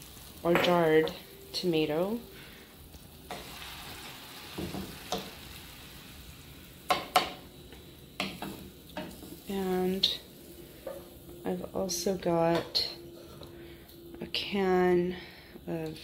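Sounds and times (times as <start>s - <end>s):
tomatoes sizzling in a pan: 0.0s - 16.0s
spoon knocking on a pan: 6.9s - 7.4s, 8.2s - 9.4s.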